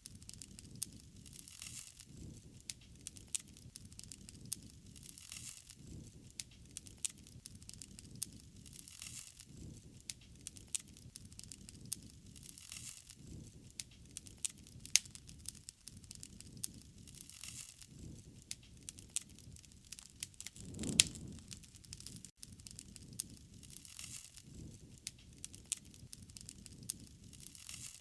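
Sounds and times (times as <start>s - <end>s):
wood fire crackling: 13.7s - 28.0s
low rumble: 20.6s - 21.7s.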